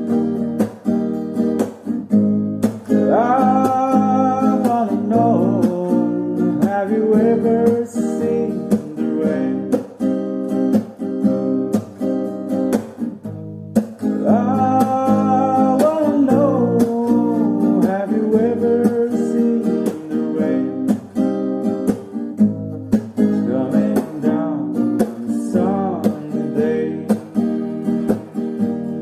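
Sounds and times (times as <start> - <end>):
acoustic guitar strumming: 0.0 - 29.0
person singing: 2.9 - 10.0, 14.1 - 22.2, 23.2 - 28.3.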